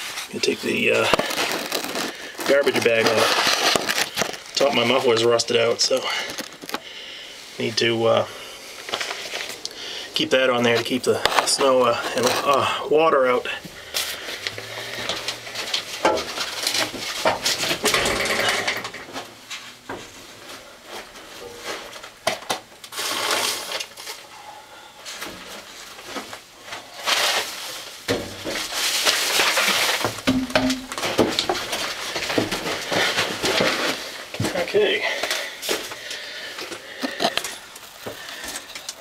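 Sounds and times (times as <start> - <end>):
plastic bag crinkling: 0.0 - 18.7, 25.6 - 39.0
clicks and knocks: 30.2 - 31.6.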